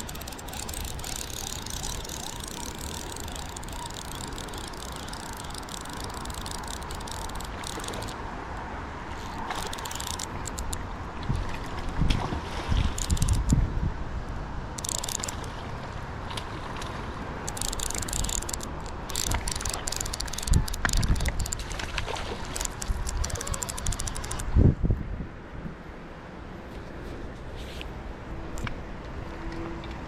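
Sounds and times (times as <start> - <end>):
fishing reel clicking: 0.0 - 8.2, 9.2 - 10.8, 12.9 - 13.6, 14.8 - 15.5, 17.4 - 21.6, 22.5 - 24.5
wind buffeting microphone: 22.5 - 25.8.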